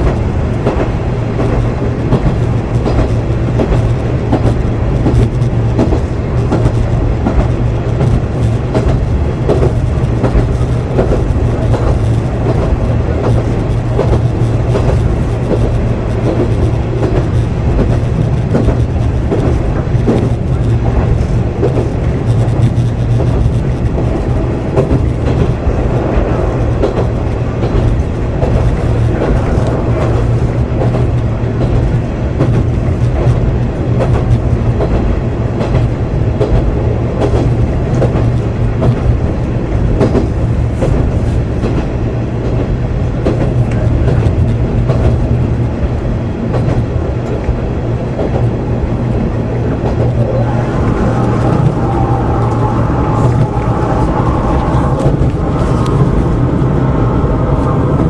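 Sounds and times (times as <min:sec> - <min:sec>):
wheels clicking over rail joints: 0:00.0 - 0:39.2
diesel engine drone: 0:43.6 - 0:58.0.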